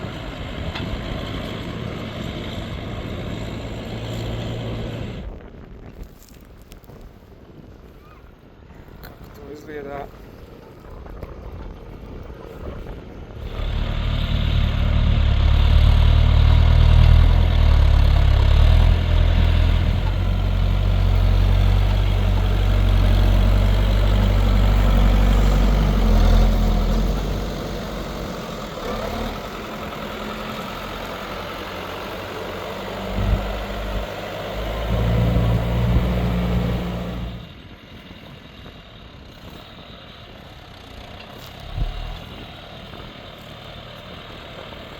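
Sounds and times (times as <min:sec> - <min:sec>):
tractor diesel engine working hard: 0:12.6 - 0:44.9.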